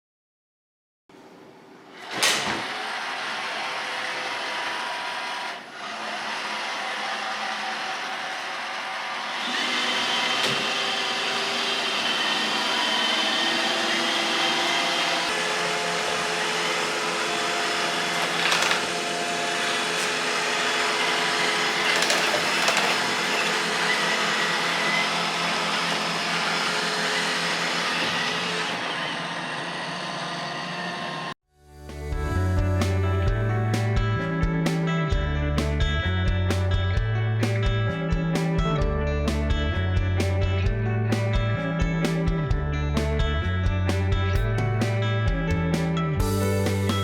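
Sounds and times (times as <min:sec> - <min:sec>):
robot vacuum running: 0:02.0 - 0:31.3.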